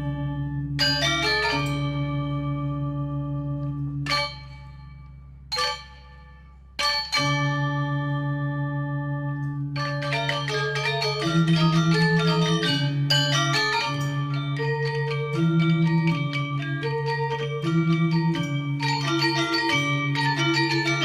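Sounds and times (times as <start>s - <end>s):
gamelan metallophones and gongs: 0.0s - 21.0s
low held note: 0.0s - 21.0s.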